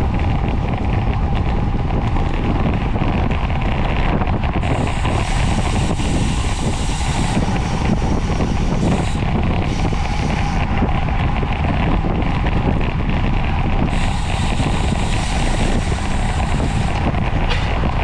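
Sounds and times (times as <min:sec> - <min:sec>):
wind rushing over microphone: 0:00.0 - 0:18.0
high hiss: 0:04.6 - 0:10.6, 0:13.9 - 0:17.1.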